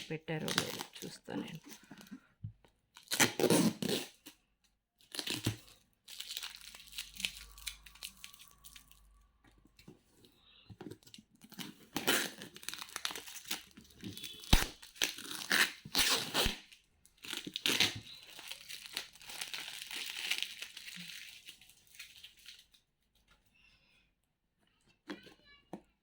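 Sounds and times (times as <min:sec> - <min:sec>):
packaging crinkling and tearing: 0:02.9 - 0:04.4, 0:05.0 - 0:09.3, 0:11.0 - 0:22.8.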